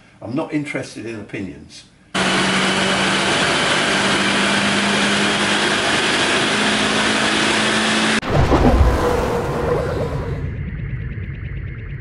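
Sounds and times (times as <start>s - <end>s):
car engine running on dyno: 2.2s - 8.2s.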